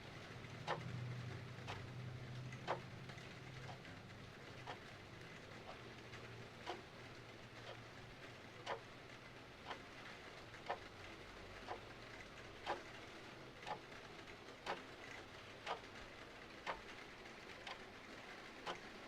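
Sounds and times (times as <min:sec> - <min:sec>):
clock ticking: 0:00.6 - 0:08.0, 0:08.6 - 0:09.0, 0:09.6 - 0:10.9, 0:11.5 - 0:13.0, 0:13.6 - 0:16.0, 0:16.6 - 0:17.0, 0:17.6 - 0:17.9, 0:18.6 - 0:19.0.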